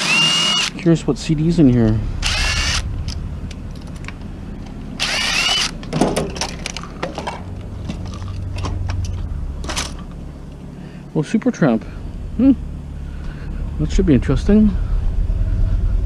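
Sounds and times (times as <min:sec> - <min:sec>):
cordless drill whirring: 0:00.0 - 0:00.8, 0:02.2 - 0:02.8, 0:05.0 - 0:05.8
steady low hum: 0:00.0 - 0:16.0
plastic parts clicking and rattling: 0:05.4 - 0:10.2.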